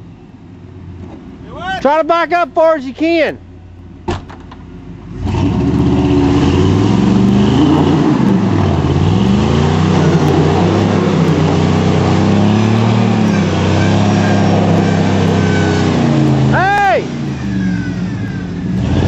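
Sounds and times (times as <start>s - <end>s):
truck engine revving hard: 5.0s - 19.0s.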